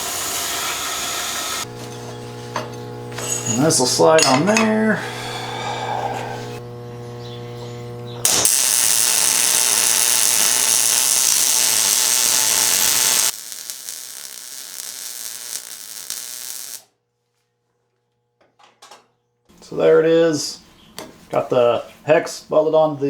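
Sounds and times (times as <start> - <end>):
arc welding crackle: 8.2 - 16.9.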